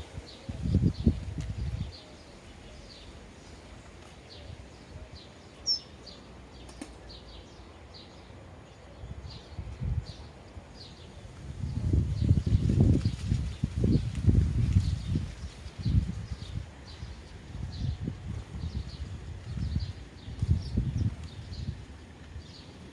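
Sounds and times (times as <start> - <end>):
sparrows chirping: 0.0 - 22.9.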